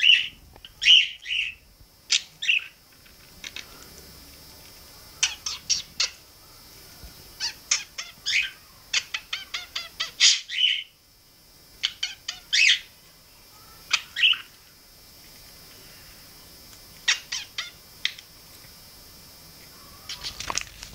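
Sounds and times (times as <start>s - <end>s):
budgerigar chirping and clicking: 5.2s - 6.2s, 17.0s - 18.3s.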